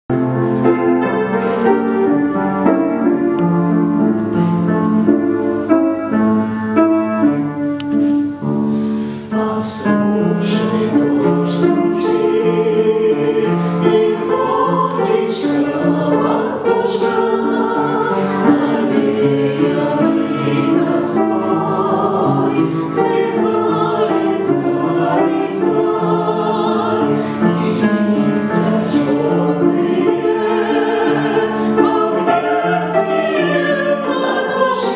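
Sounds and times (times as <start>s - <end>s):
instrumental accompaniment: 0.1s - 34.9s
choir singing: 9.3s - 34.9s.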